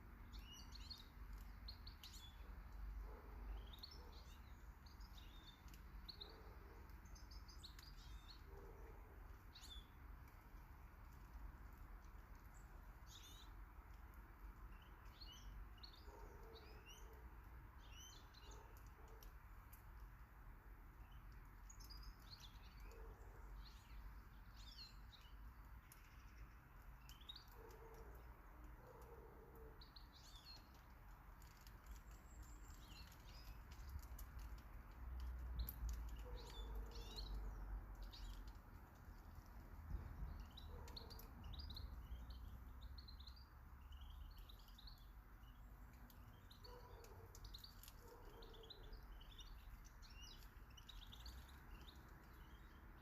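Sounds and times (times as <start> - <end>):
birds chirping: 35.6 - 53.0.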